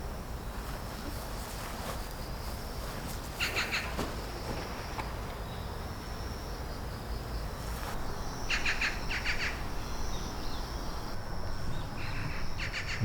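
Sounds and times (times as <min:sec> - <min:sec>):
insect-like trill: 0:00.1 - 0:13.0
low outdoor rumble: 0:04.1 - 0:13.0
bird chirping: 0:08.0 - 0:13.0.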